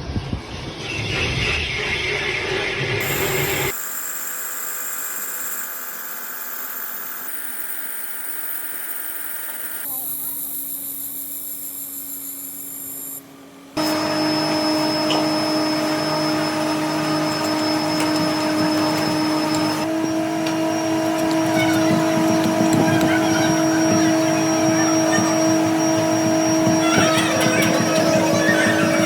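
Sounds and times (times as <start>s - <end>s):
factory machinery humming and whining: 0.2s - 29.0s.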